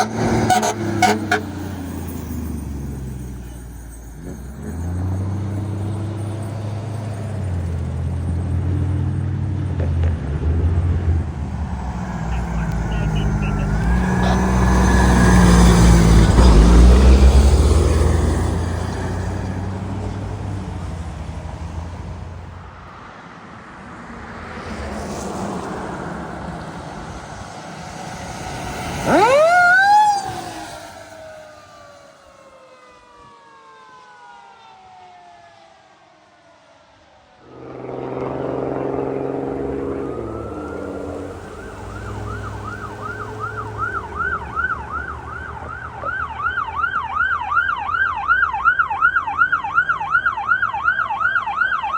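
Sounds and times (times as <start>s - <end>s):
electronic siren yelping: 0.0s - 1.7s, 11.4s - 19.5s, 28.9s - 32.2s, 37.4s - 51.9s
fire engine running loudly: 0.0s - 9.2s, 9.8s - 22.4s, 27.0s - 34.1s, 37.2s - 51.9s
siren wailing: 0.0s - 9.2s, 10.7s - 21.8s, 28.5s - 51.9s.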